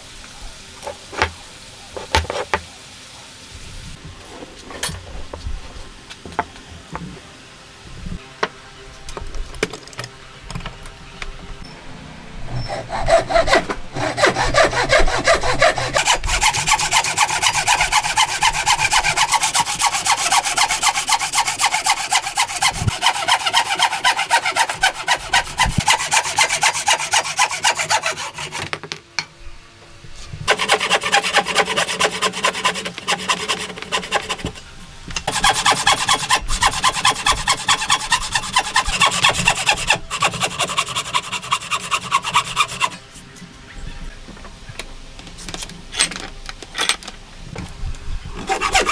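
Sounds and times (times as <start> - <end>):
hand saw cutting wood: 12.5 - 28.8, 30.5 - 34.6, 35.2 - 43.0, 48.4 - 48.9.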